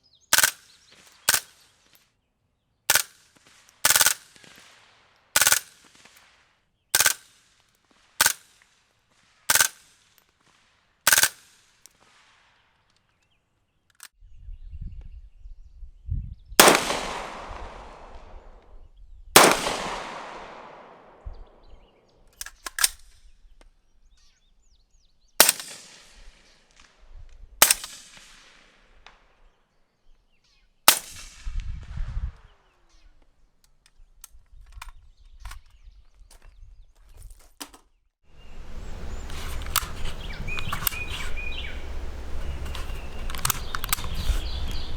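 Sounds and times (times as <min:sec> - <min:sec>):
suppressed gunshots: 0:16.6 - 0:18.6, 0:19.4 - 0:21.8, 0:38.4 - 0:44.9.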